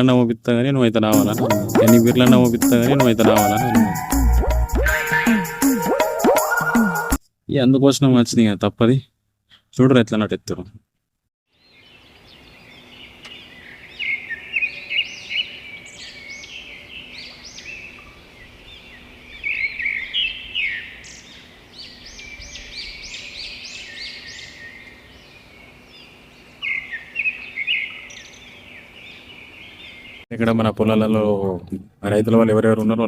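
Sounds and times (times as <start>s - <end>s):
birds chirping: 11.7s - 30.2s.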